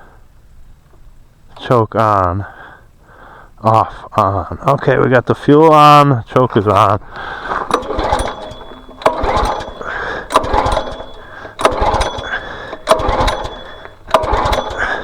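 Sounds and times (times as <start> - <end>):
small engine cranking over: 7.4 - 15.0
recoil cord pulls: 7.5 - 15.0.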